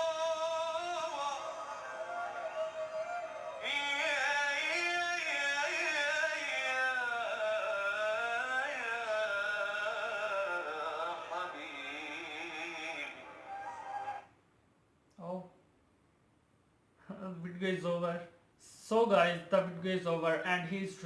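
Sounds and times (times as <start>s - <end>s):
man singing ornamented lines: 0.0s - 14.3s.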